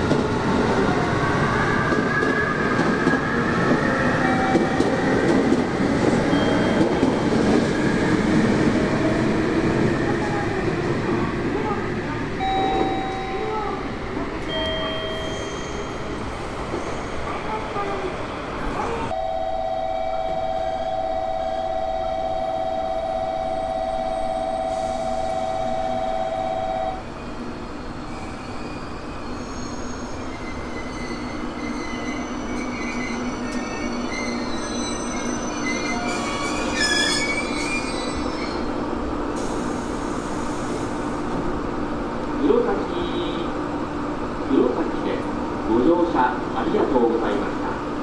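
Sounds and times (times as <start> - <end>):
two-tone electronic signal: 12.4 - 13.7, 19.2 - 27.0
train wheels squealing: 14.4 - 17.3, 28.1 - 38.7.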